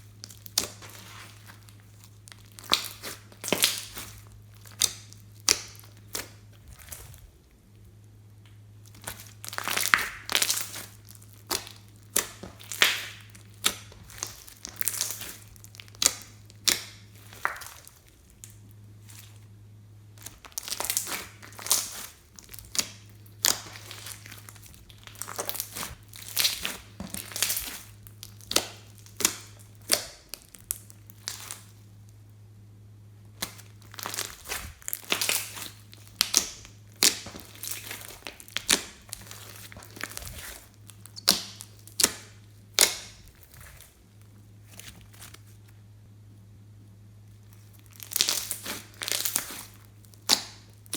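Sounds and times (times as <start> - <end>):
faint low hum: 0.0 - 50.9
slime crackling pops: 2.4 - 7.0, 8.9 - 18.0, 20.2 - 31.7, 33.4 - 43.8.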